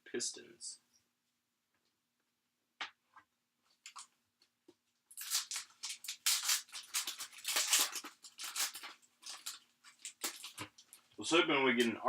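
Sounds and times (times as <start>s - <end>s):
cards crinkling rustle: 5.1s - 11.2s.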